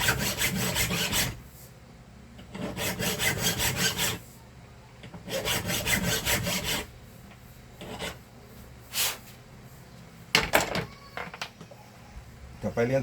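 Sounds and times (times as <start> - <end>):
hand file rasping on metal: 0.0 - 1.4, 2.5 - 4.2, 5.2 - 6.9, 7.8 - 8.2.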